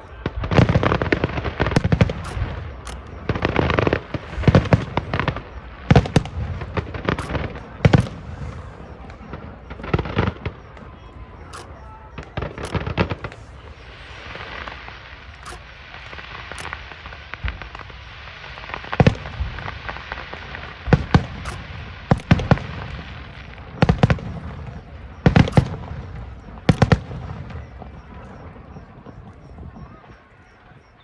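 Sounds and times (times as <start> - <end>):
constant crackle: 0.0 - 31.0
sharp bangs: 2.0 - 4.9, 7.1 - 9.1, 11.5 - 13.4, 15.4 - 17.1, 21.5 - 22.9, 25.5 - 26.1
fireworks shells bursting: 2.0 - 5.3, 7.0 - 9.0, 11.5 - 11.9, 12.6 - 17.4, 21.4 - 23.5, 25.4 - 27.3.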